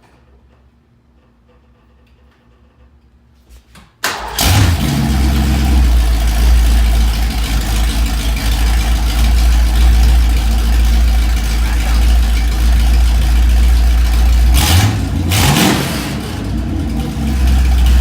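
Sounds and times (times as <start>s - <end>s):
car engine starting and idling: 4.0s - 18.0s.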